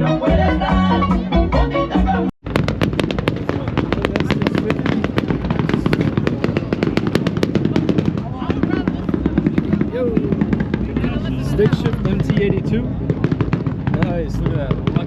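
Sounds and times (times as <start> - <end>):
background music: 0.0 - 2.3
exhaust pops and bangs: 2.4 - 15.0.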